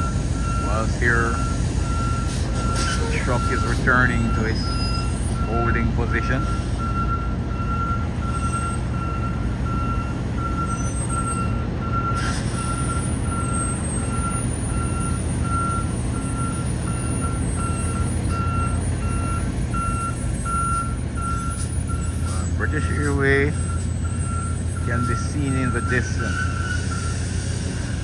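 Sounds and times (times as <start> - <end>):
diesel engine rumble: 0.0 - 28.0
truck reversing alarm beeping: 0.0 - 28.0.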